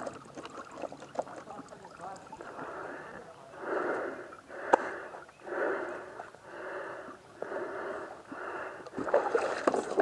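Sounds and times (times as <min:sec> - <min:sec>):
person breathing hard: 0:02.4 - 0:09.0.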